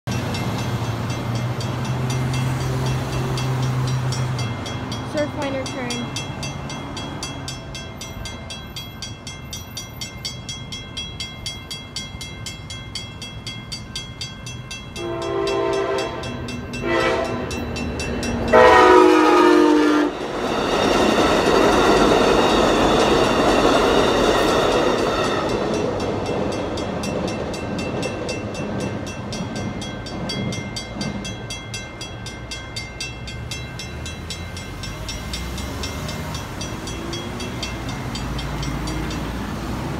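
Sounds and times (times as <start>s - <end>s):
railroad crossing bells ringing: 0.0s - 39.9s
train wheels rushing on rails: 0.1s - 39.9s
train horn blasts: 15.0s - 17.6s, 18.5s - 20.2s.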